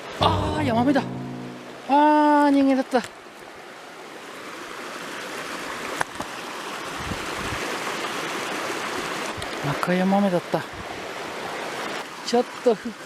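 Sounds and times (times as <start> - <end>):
stream rushing over rocks: 3.2 - 13.0.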